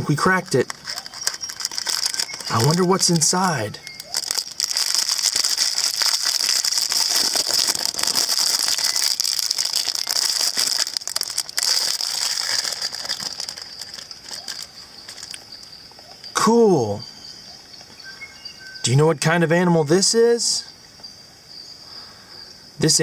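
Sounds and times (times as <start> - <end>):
plastic shell rattling and crackling: 0.0 - 15.6.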